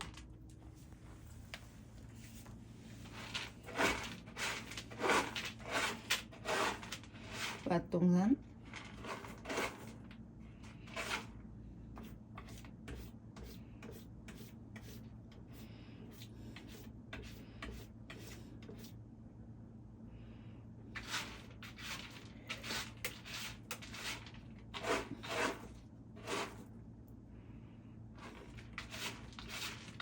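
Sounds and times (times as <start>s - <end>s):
cat scratching litter: 2.0s - 7.7s, 8.6s - 18.9s, 20.9s - 26.7s, 28.2s - 30.0s.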